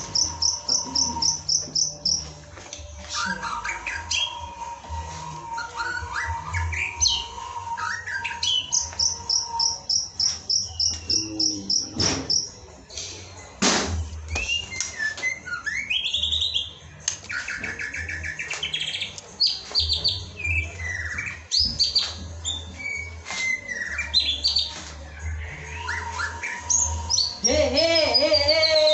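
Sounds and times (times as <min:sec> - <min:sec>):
bird singing whistled phrases: 0:00.0 - 0:02.3, 0:05.5 - 0:12.6, 0:14.3 - 0:24.8.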